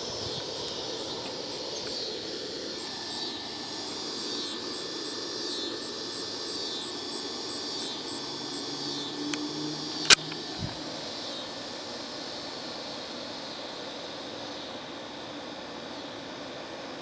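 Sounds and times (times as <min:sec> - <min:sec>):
insects pulsing chorus: 0:00.0 - 0:17.0
sharp click: 0:09.3 - 0:10.5.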